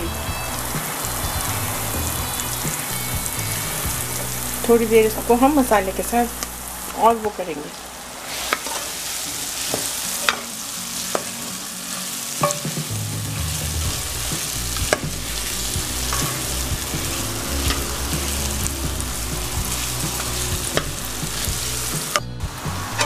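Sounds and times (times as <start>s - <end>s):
food sizzling in oil: 0.0s - 23.0s
metal spoon knocking steel pan: 12.4s - 12.8s, 16.1s - 16.5s.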